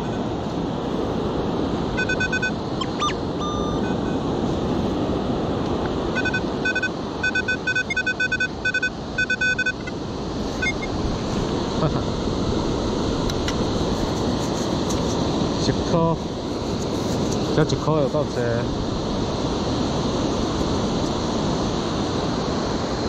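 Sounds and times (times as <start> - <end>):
metal detector beeping: 0.0 - 0.3, 2.0 - 4.3, 6.1 - 10.0, 10.6 - 11.0
wind: 0.0 - 23.0.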